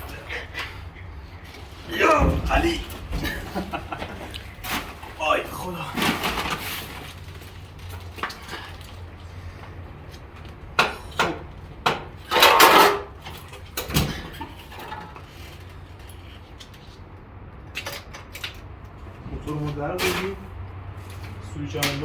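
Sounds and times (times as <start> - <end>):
motorcycle knocks and clunks: 2.1 - 4.2.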